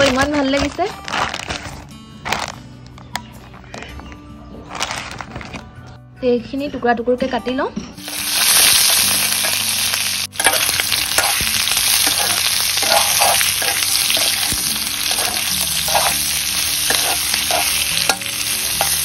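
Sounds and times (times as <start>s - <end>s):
chicken and onions sizzling in oil: 8.0s - 19.0s
metal spoon scraping a pan: 10.4s - 19.0s.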